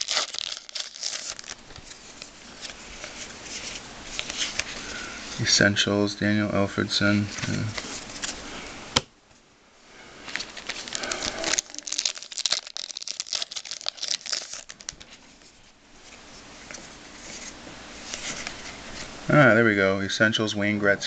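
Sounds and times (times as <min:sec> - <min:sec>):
card pack wrapper crinkling and tearing: 0:00.0 - 0:04.8, 0:10.3 - 0:15.2.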